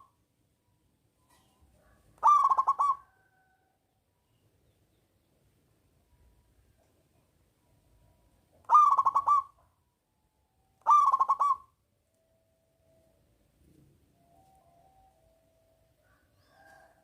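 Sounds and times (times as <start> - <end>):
dove cooing: 2.2 - 3.4, 8.6 - 9.6, 10.8 - 11.7.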